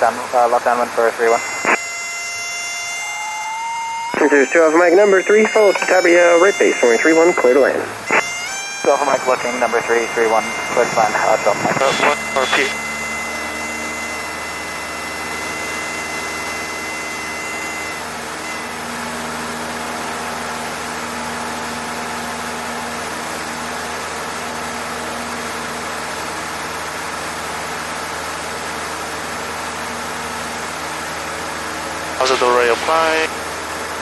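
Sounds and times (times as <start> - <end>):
airplane engine droning: 0.0 - 34.0
steady high tone: 0.3 - 22.2, 32.2 - 33.5.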